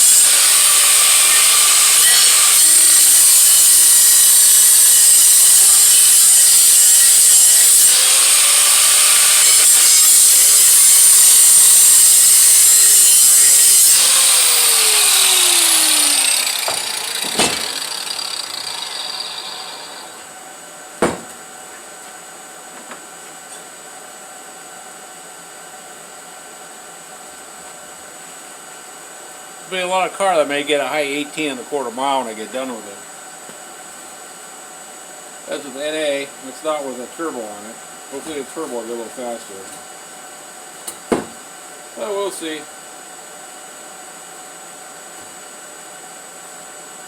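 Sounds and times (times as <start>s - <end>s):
power tool grinding metal: 0.0s - 20.3s
sharp knocks: 16.6s - 18.0s, 21.0s - 21.4s, 41.1s - 41.4s.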